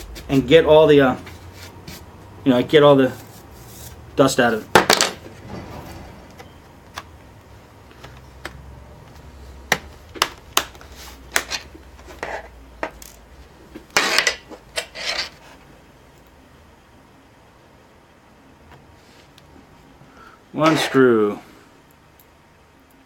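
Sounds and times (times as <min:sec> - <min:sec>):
parts clattering: 0:04.5 - 0:07.2, 0:09.6 - 0:15.4.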